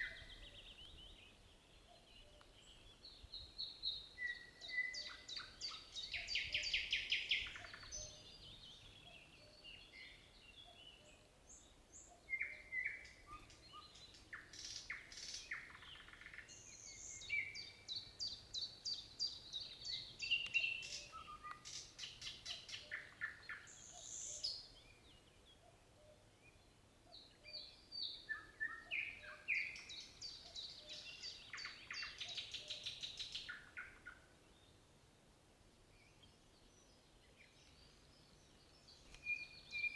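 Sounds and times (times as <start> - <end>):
nightingale singing: 0.0 - 34.9, 35.9 - 39.9.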